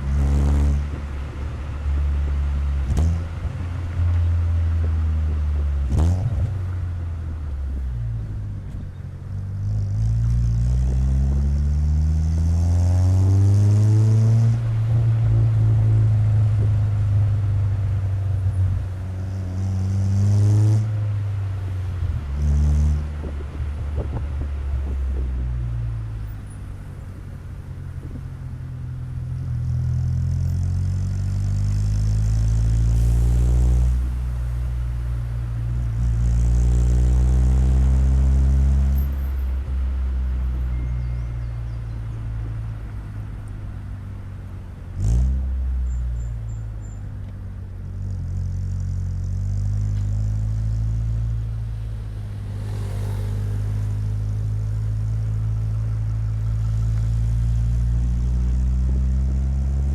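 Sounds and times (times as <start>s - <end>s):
car exhaust revving: 28.0s - 40.5s, 47.8s - 59.9s.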